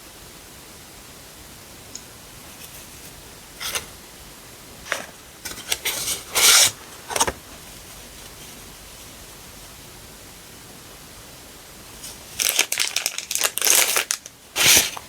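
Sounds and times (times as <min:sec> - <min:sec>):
sticker packaging rustling: 0:04.9 - 0:07.6, 0:12.0 - 0:15.0.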